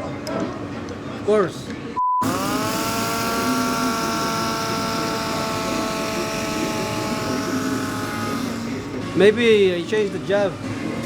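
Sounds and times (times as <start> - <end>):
steady droning tone: 2.2 - 11.0.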